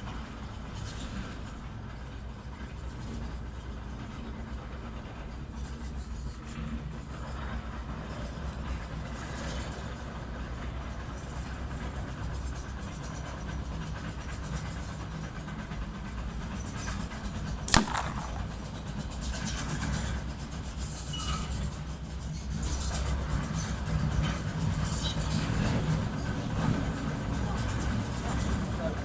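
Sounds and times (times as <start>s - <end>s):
air rifle shot: 17.7s - 19.0s.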